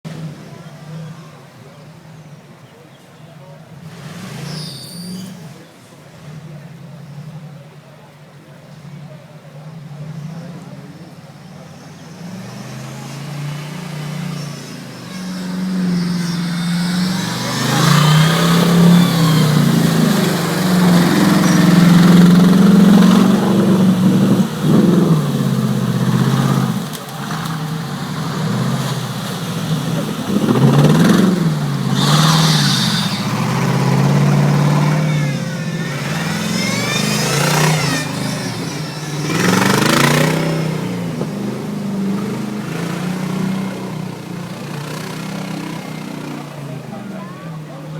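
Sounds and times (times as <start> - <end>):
buggy engine revving hard: 3.7 - 7.8, 8.7 - 47.9
bursts of rushing noise: 12.5 - 46.3.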